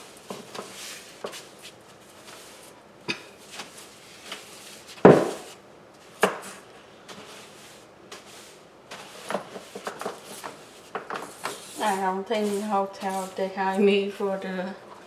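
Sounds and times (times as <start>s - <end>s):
heavy thud: 5.0s - 5.5s
sharp knock: 5.1s - 5.5s.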